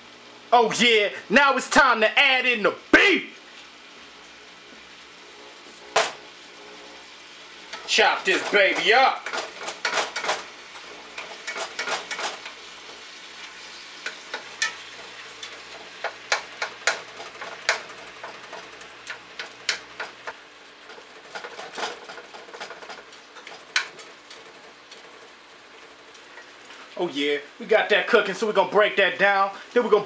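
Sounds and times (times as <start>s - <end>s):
meat sizzling: 1.9s - 30.0s
spatula tapping and scraping pan: 11.1s - 12.6s, 14.0s - 25.0s.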